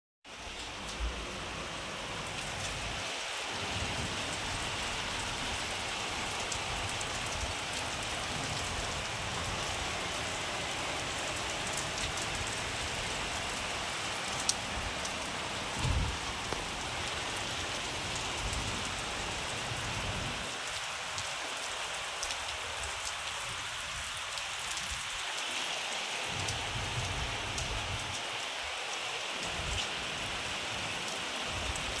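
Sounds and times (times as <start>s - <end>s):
rain on concrete rooftop: 0.2s - 32.0s
low thump: 15.8s - 16.1s.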